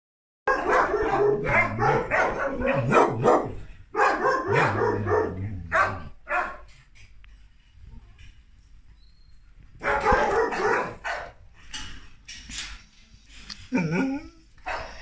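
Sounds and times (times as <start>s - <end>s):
dog barking and yelping: 0.5s - 6.7s, 9.8s - 11.4s, 14.6s - 15.0s.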